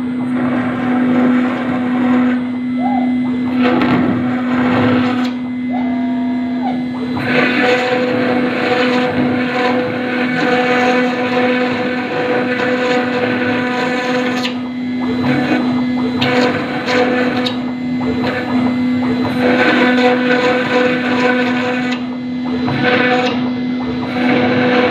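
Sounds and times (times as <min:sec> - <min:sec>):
router spindle whine: 0:00.0 - 0:24.9
bit grinding into stone: 0:07.2 - 0:14.6.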